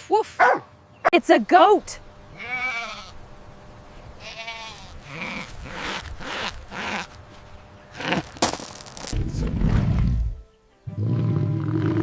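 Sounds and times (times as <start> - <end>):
goat bleating: 2.3 - 3.2, 4.2 - 7.2.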